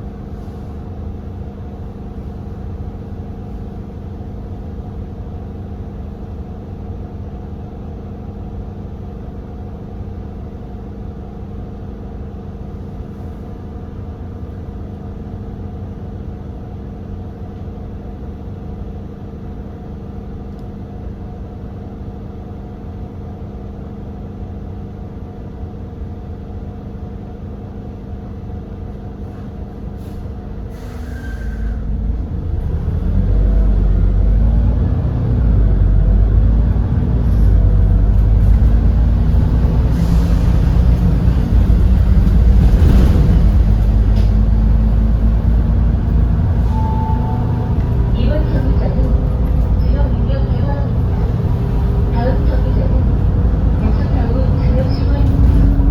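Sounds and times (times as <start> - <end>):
bus engine idling: 26.6 - 55.9.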